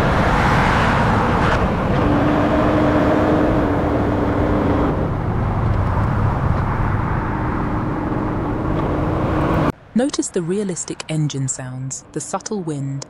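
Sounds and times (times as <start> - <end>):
sports car engine at speed: 0.0 - 9.8
wind and road noise: 0.0 - 13.0.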